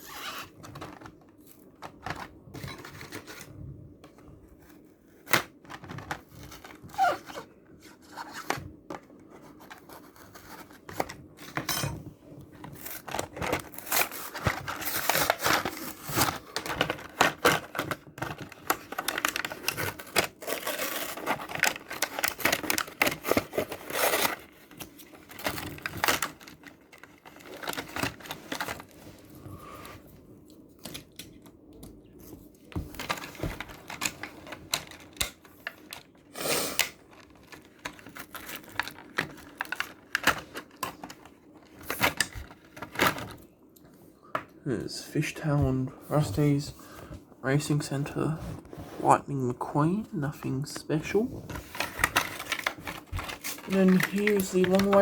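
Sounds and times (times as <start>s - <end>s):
blister packaging crinkling and tearing: 12.7s - 29.0s, 36.8s - 43.4s, 51.0s - 55.0s.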